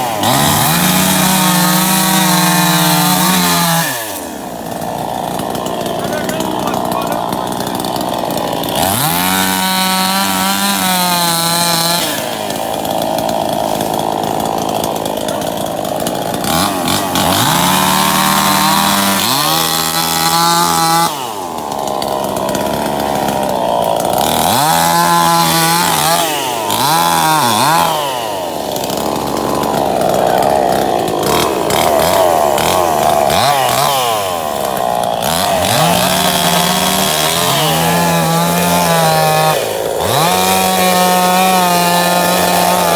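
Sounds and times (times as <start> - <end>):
tractor engine revving: 0.0 - 42.9.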